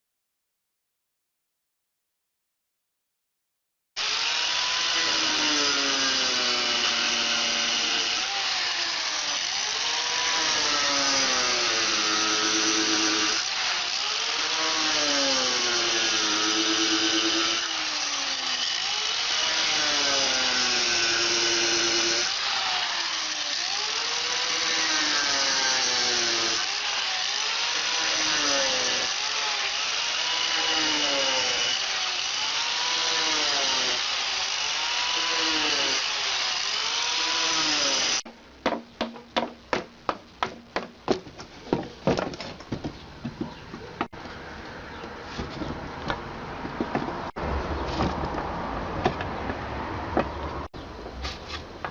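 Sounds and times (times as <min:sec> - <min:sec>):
angle grinder cutting tile: 0:04.0 - 0:38.3.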